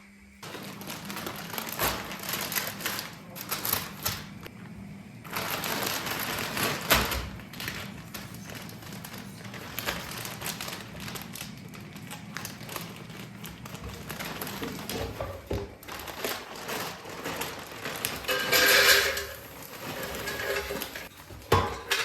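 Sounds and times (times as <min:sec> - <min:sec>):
dishes and utensils clattering: 0:16.6 - 0:22.0.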